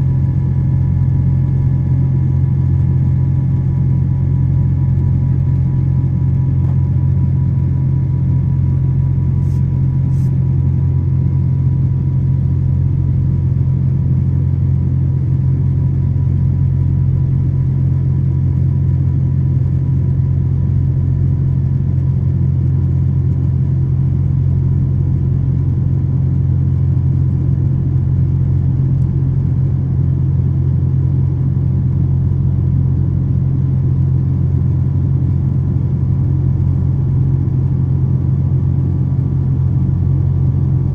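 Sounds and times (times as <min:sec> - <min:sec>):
jet engine drone in cabin: 0:00.0 - 0:40.9
faint thin hum: 0:09.3 - 0:10.5.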